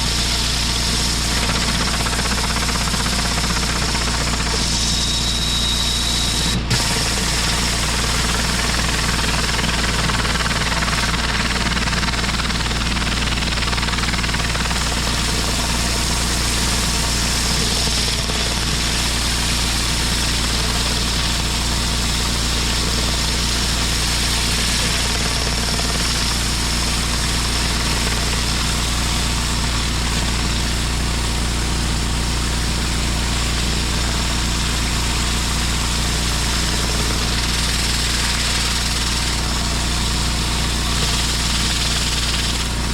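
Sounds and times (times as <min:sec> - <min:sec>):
high-pressure water jet hissing: 0:00.0 - 0:11.6, 0:14.0 - 0:42.9
pressure washer motor humming: 0:00.0 - 0:42.9.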